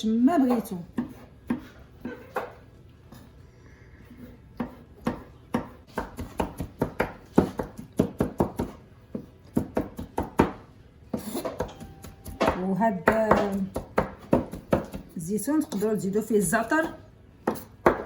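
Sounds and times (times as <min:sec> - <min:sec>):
knife chopping on cutting board: 0:00.4 - 0:02.6, 0:04.6 - 0:15.8, 0:17.4 - 0:18.0.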